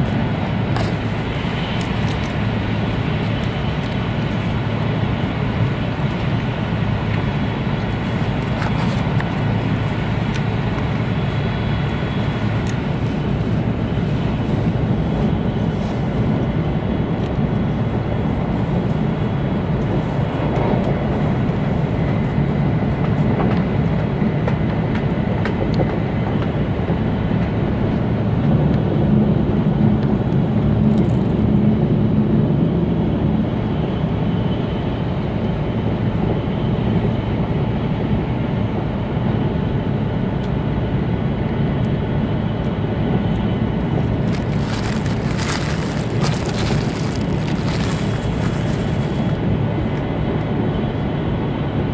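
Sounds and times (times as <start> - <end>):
train wheels and air rushing: 0.0 - 31.3, 43.0 - 51.0
faint steady whines: 0.0 - 51.9.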